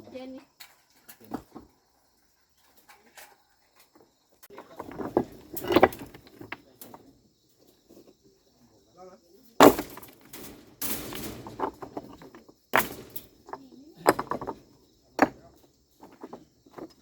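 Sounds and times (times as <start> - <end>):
insects buzzing: 3.3 - 17.0
hard objects knocking: 4.6 - 7.0, 9.6 - 17.0.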